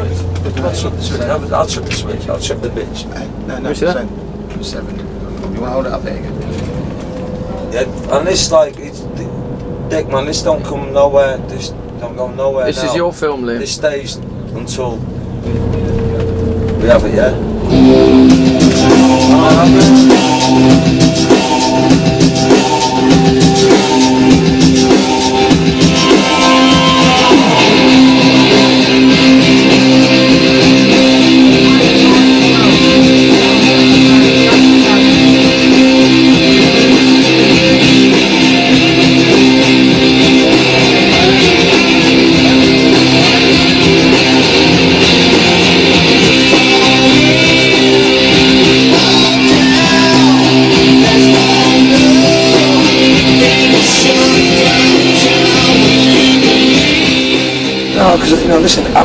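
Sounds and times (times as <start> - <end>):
rock music with guitars and drums: 15.1 - 59.0.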